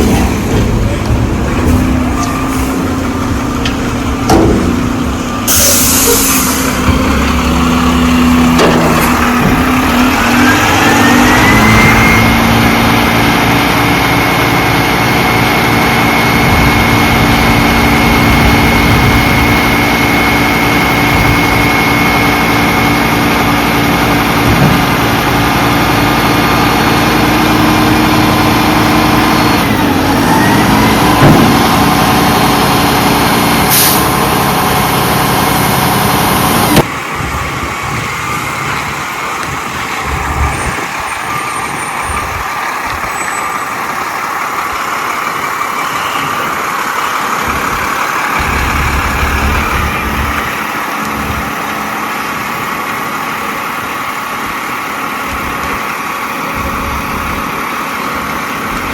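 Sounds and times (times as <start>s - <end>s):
truck diesel engine running: 0.0s - 58.9s
air hiss: 5.5s - 6.7s.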